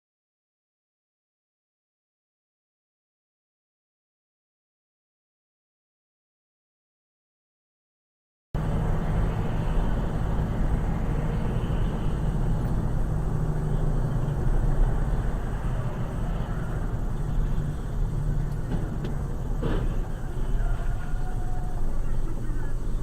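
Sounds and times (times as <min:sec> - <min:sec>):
car road and engine noise: 0:08.6 - 0:23.0.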